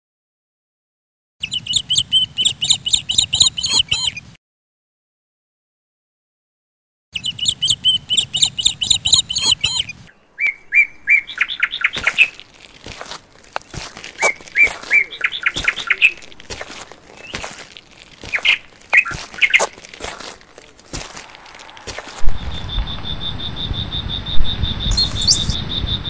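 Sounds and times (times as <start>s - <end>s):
birds chirping: 1.4s - 4.3s, 7.2s - 26.0s.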